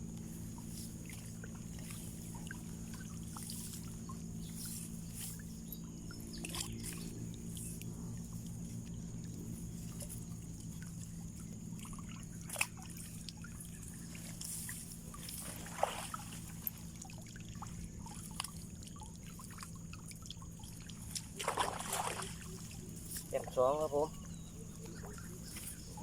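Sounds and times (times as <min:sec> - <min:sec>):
steady low hum: 0:00.0 - 0:26.0
water trickling and sloshing: 0:00.0 - 0:26.0
short splash: 0:11.8 - 0:23.5.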